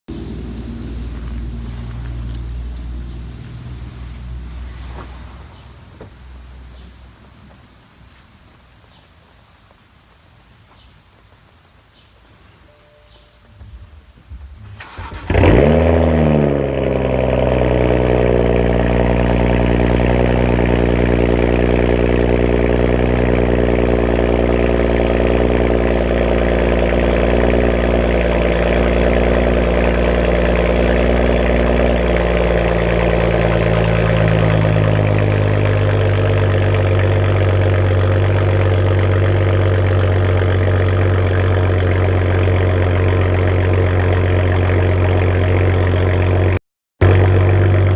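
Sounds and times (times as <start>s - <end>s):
car engine idling loudly: 15.0s - 47.9s.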